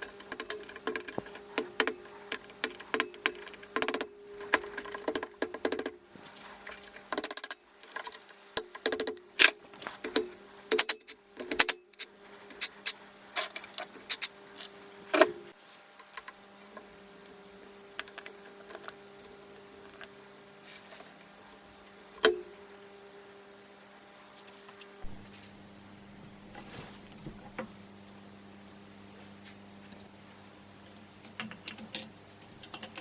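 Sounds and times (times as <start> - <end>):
low hum: 25.0 - 26.0.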